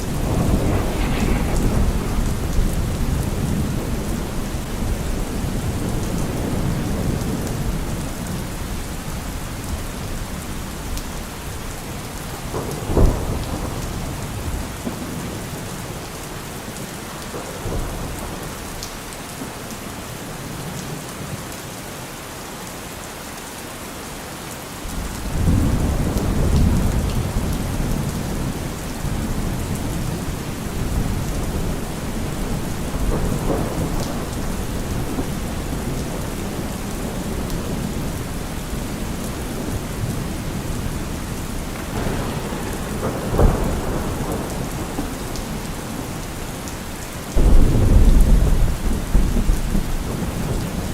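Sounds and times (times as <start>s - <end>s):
thunder crack: 0.0s - 7.8s, 12.3s - 15.4s, 24.9s - 50.9s
thunder rumbling: 0.0s - 19.0s, 24.9s - 50.9s
steady rain: 0.0s - 50.9s.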